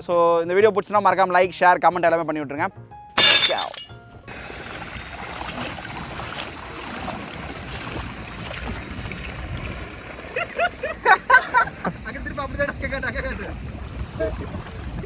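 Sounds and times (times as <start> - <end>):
water: 4.3 - 15.0
wind noise: 4.3 - 15.0.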